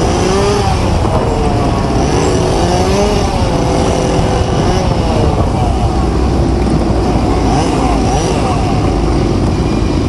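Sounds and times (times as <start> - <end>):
road traffic noise: 0.0 - 10.0
wind rumble on microphone: 0.0 - 10.0.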